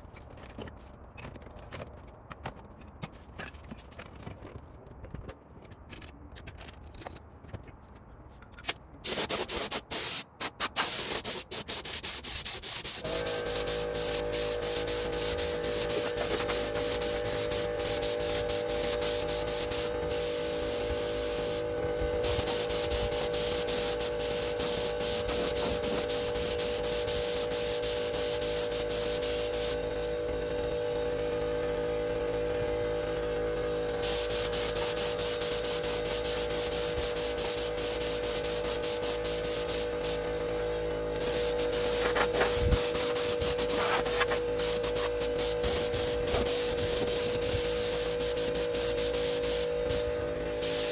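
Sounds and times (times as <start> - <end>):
power tool sanding: 12.6 - 50.9
motor whine: 13.0 - 50.9.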